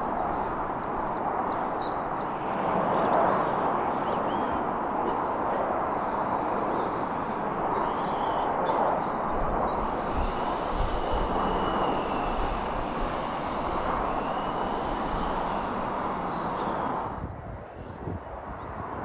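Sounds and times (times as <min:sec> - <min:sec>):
train passing: 0:00.0 - 0:17.2.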